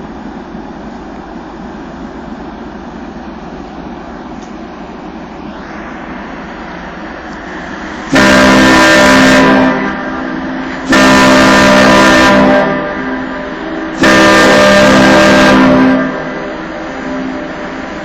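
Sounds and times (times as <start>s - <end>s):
steady background rumble: 0.0s - 18.0s
ship horn blasts: 7.4s - 18.0s.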